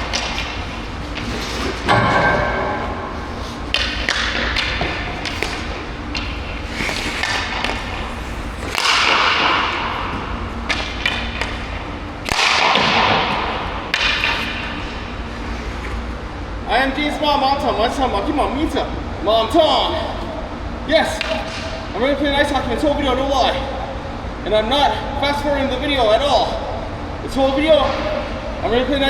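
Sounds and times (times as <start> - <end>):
steady low rumble: 0.0 - 21.0
ice skates scraping ice: 0.2 - 2.0, 3.1 - 13.4, 14.0 - 16.2.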